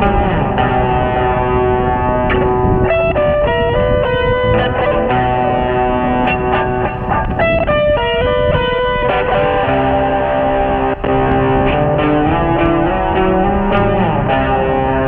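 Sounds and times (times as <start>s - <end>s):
electric guitar melody: 0.0s - 15.0s.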